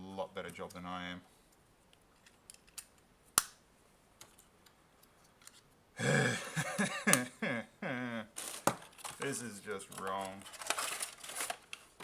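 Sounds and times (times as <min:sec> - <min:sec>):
man making wordless vocal sounds: 0:06.0 - 0:08.4.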